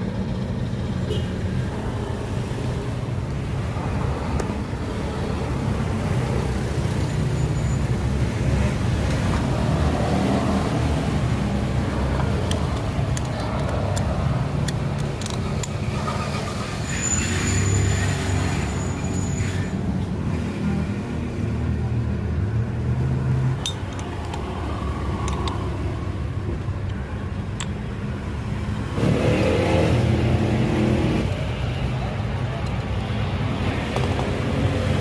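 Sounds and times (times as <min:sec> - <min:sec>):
sharp clicks: 0:12.2 - 0:15.8.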